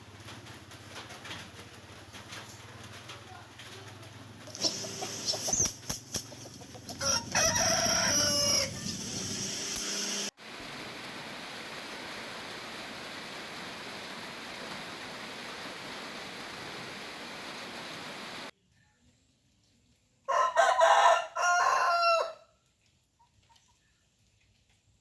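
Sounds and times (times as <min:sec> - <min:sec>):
hiss of rain: 0:00.0 - 0:05.6, 0:07.0 - 0:18.5
chickens clucking: 0:04.4 - 0:09.5
rooster crowing: 0:06.9 - 0:09.0, 0:20.3 - 0:22.4.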